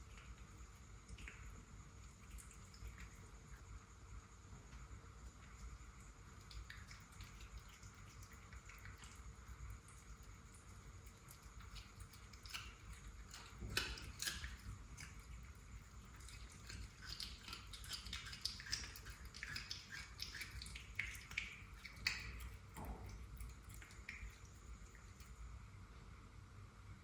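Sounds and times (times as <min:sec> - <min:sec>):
cat chewing and crunching: 0:00.0 - 0:03.7, 0:05.1 - 0:25.5.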